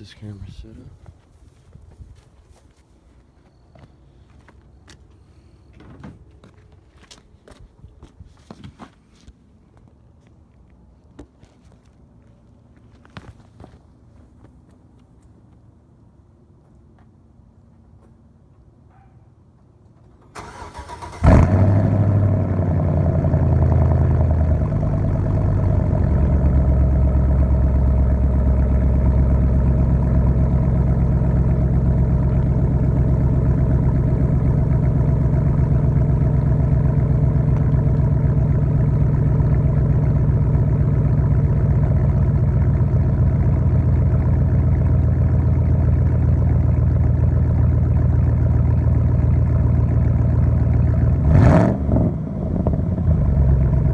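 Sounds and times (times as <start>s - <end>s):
truck engine starting and idling: 20.0s - 53.9s.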